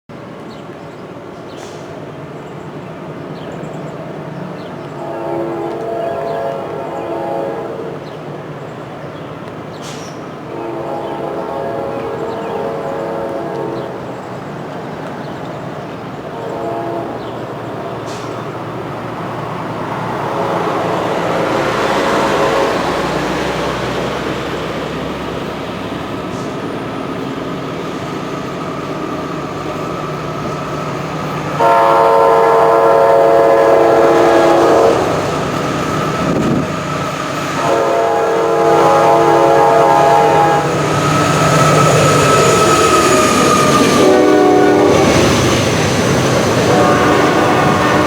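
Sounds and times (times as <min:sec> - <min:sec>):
freight train rumble: 0:00.1 - 0:48.0
locomotive air horn: 0:04.9 - 0:08.0, 0:10.5 - 0:14.0, 0:16.3 - 0:17.3, 0:20.2 - 0:23.3, 0:31.5 - 0:45.8, 0:46.6 - 0:48.0.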